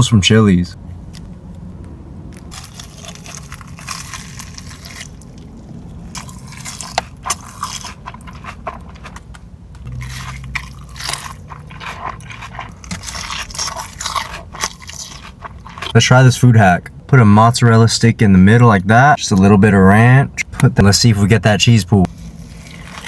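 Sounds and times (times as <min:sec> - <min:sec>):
crunching crispy fried food: 0:02.4 - 0:16.0, 0:22.1 - 0:23.0.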